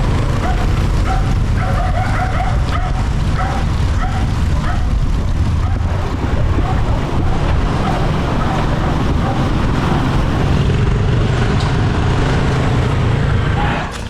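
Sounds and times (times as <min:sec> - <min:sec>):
wind rumble on microphone: 0:00.0 - 0:13.9
dog barking: 0:00.3 - 0:05.0, 0:05.6 - 0:06.0, 0:06.6 - 0:09.7.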